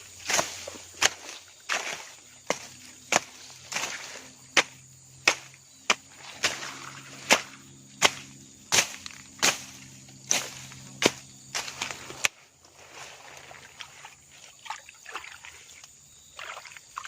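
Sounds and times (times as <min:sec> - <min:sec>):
sharp swishing chopping hits: 0:01.8 - 0:12.3.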